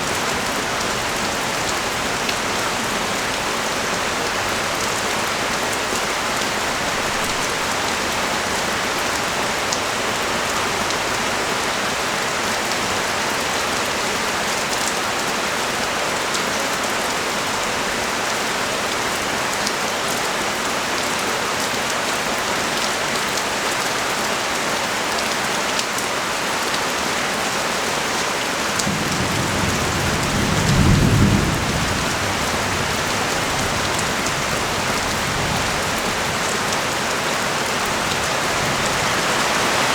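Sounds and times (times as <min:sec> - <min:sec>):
steady rain on street: 0:00.0 - 0:39.9
low rumble of thunder: 0:28.9 - 0:36.4.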